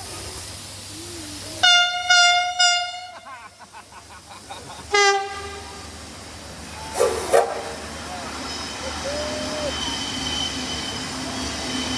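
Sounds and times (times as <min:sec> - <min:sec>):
train whistle blasts: 0:01.6 - 0:03.2, 0:04.9 - 0:05.9.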